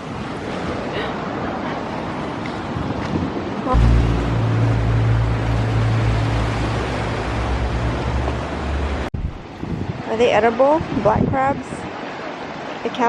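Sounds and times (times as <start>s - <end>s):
wind buffeting microphone: 2.4s - 12.0s.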